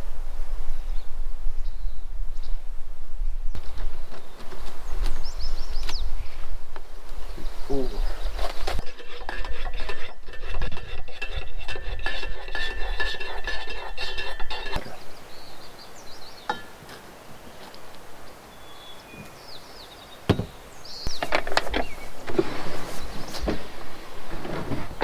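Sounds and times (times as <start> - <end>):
metal utensils and dishes clinking: 8.6 - 15.0
knock: 20.3 - 20.6.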